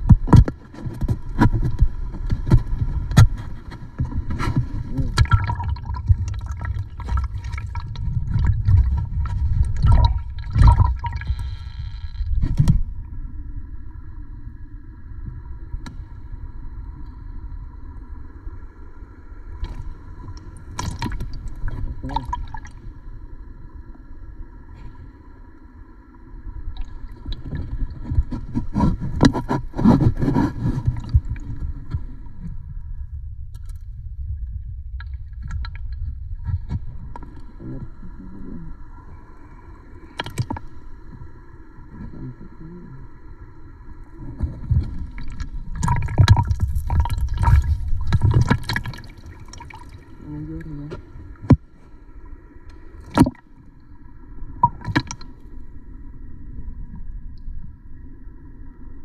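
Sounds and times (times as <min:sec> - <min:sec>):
knocks underwater: 0:00.0 - 0:11.4, 0:27.3 - 0:32.2, 0:44.3 - 0:49.9, 0:53.0 - 0:53.4, 0:54.6 - 0:55.3
muffled underwater sloshing: 0:00.0 - 0:59.0
low rumble: 0:01.0 - 0:59.0.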